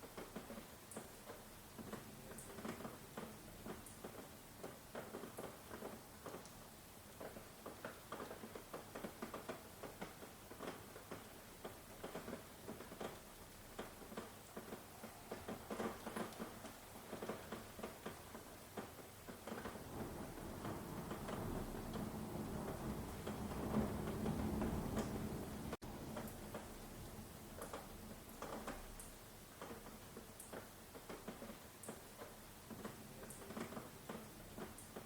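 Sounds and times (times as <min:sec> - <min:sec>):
raindrops pattering: 0:00.0 - 0:35.0.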